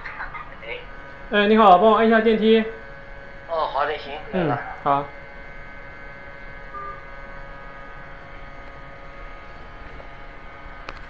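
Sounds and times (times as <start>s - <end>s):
electrical hum: 0.0s - 11.0s
faint steady tones: 0.0s - 11.0s
brief faint tone: 6.7s - 7.9s.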